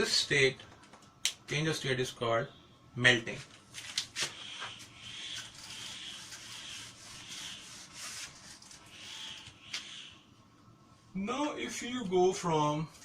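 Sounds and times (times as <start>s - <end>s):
pen scratching on paper: 5.2s - 9.3s.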